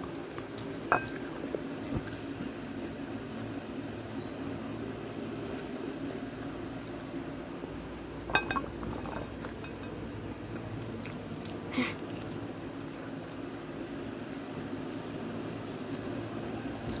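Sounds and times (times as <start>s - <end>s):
steady low hum: 0.0s - 17.0s
cutlery clinking against a dish: 8.3s - 10.0s.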